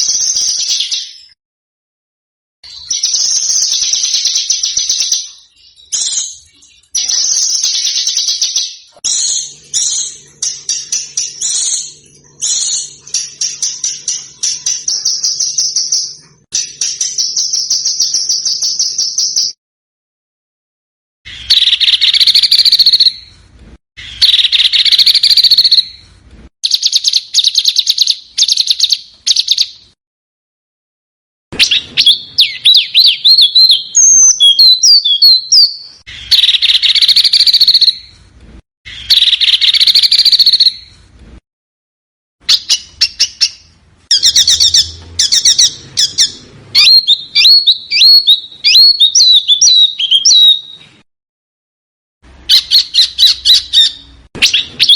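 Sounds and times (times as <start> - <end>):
songbird singing: 31.6 - 38.1, 42.5 - 51.0.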